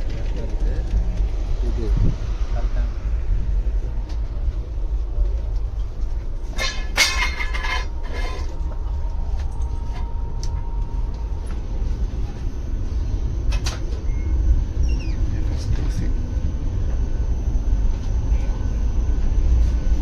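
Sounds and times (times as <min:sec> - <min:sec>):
train rumble inside coach: 0:00.0 - 0:20.0
metallic clattering and clinking: 0:06.4 - 0:08.6.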